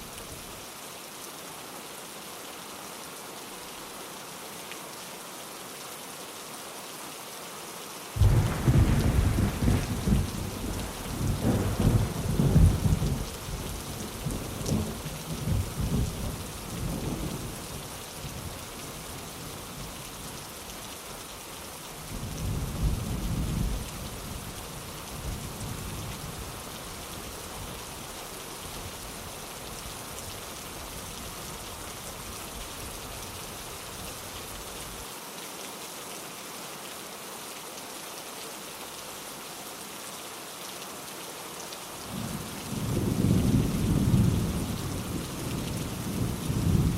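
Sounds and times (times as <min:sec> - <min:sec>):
steady rain: 0:00.0 - 0:46.9
thunder rumbling: 0:08.2 - 0:16.3.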